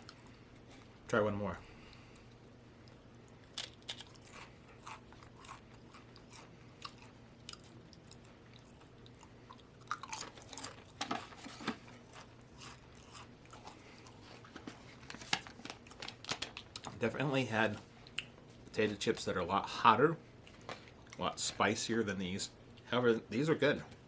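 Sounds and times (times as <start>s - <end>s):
person chewing crisps: 0.0s - 1.1s, 1.9s - 17.0s, 20.3s - 21.4s.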